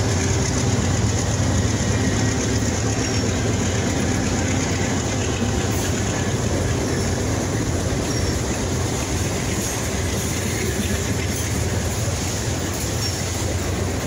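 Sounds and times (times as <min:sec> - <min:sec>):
diesel locomotive engine running: 0:00.0 - 0:14.0
freight cars rolling over rails: 0:00.0 - 0:14.0.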